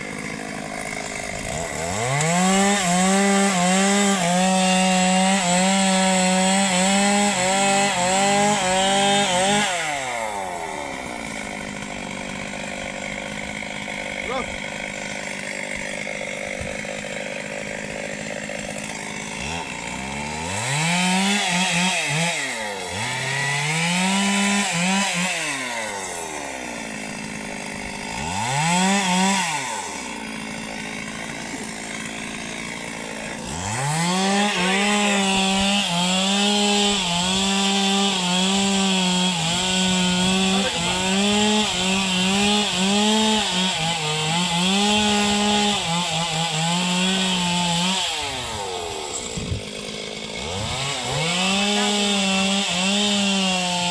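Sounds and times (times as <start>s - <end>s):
chainsaw cutting into tree: 0.0s - 53.9s
chainsaw revving: 0.0s - 53.9s.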